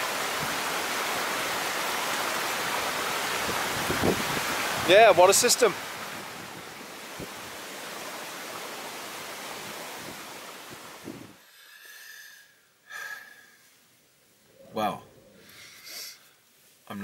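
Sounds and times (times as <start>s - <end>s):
brook flowing over stones: 0.0s - 11.4s.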